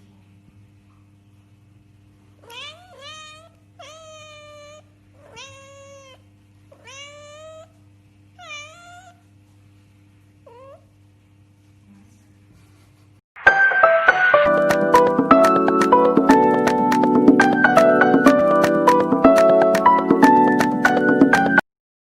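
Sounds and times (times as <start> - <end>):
cat meowing: 2.4 - 7.8, 8.4 - 9.3, 10.4 - 10.9.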